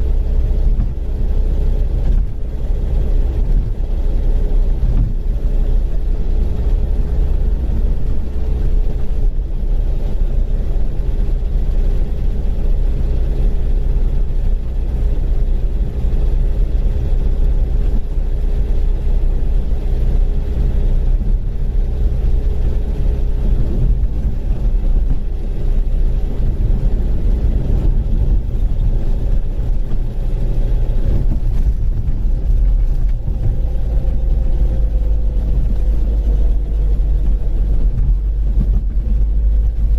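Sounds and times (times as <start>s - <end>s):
car engine rumbling: 0.0s - 39.9s
whine: 22.7s - 39.9s.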